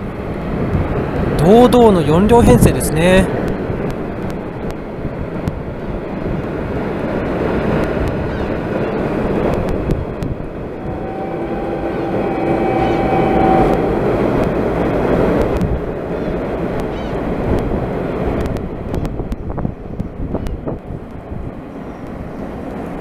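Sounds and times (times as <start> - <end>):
train rumbling over steel bridge: 0.0 - 20.0
train horn: 10.7 - 15.8.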